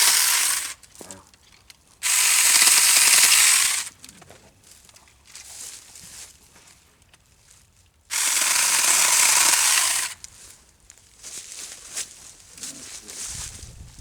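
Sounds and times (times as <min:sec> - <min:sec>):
battery chainsaw cutting limbs: 0:00.0 - 0:00.9, 0:02.0 - 0:04.0, 0:08.1 - 0:10.3.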